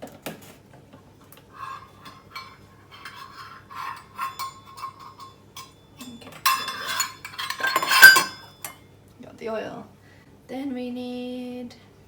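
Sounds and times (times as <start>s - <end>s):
rubbing and scraping: 1.5s - 5.7s, 6.4s - 8.5s.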